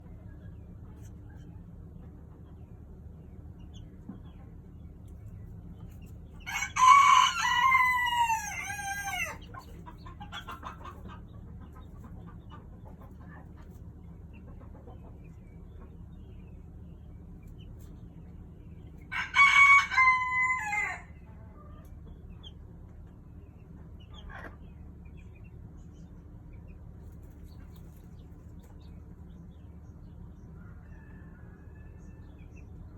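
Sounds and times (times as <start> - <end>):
rooster crowing: 6.4 - 9.5, 19.1 - 21.2, 30.6 - 32.3.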